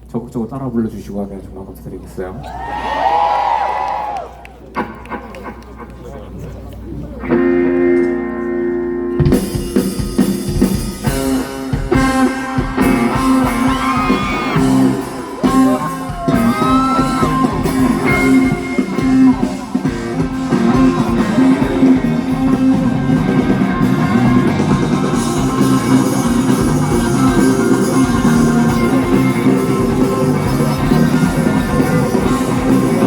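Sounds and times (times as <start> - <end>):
electric guitar: 4.7 - 33.0
live rock band playing: 7.2 - 33.0.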